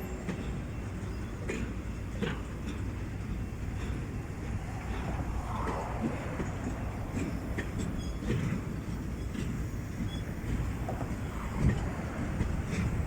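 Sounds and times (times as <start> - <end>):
diesel locomotive rumbling: 0.0 - 13.0
wheel squeals: 5.0 - 13.0.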